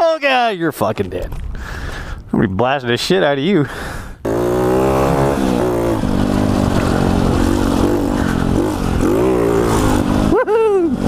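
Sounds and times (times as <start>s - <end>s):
motorbike engine revving: 4.2s - 11.0s.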